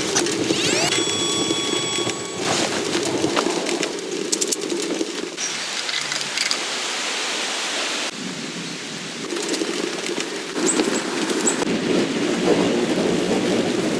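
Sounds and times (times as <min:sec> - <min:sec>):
storm hissing on a tent: 0:06.4 - 0:13.9.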